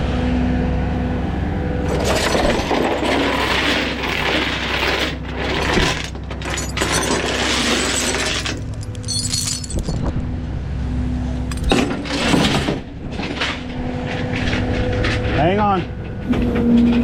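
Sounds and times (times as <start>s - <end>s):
rough clattering and scraping: 1.9s - 10.2s, 11.5s - 15.4s.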